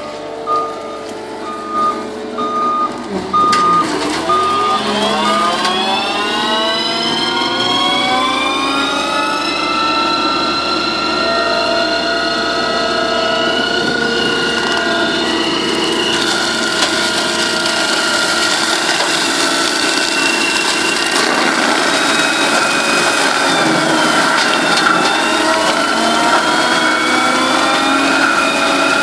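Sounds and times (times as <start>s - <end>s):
machine whine: 0.0s - 29.0s
mulcher shredding brush: 0.0s - 29.0s.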